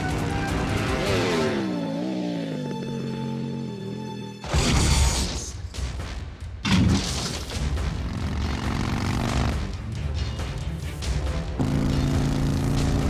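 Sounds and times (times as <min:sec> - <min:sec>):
orchestral music: 0:00.0 - 0:06.6, 0:09.5 - 0:12.6.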